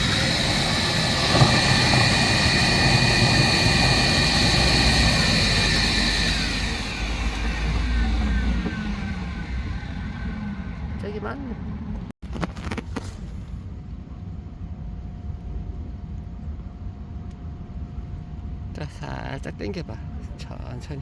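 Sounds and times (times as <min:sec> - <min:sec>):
engine-driven machine whining: 0:00.0 - 0:12.1.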